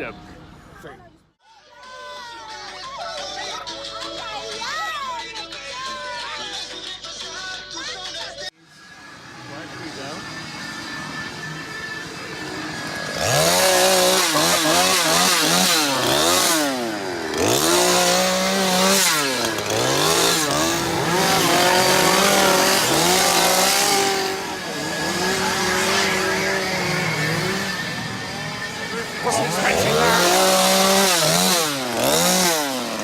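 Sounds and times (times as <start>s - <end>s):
chainsaw revving: 9.1s - 33.0s.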